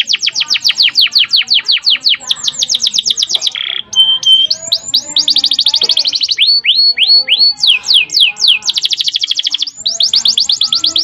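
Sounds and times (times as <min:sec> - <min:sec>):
canary singing trills: 0:00.0 - 0:11.0.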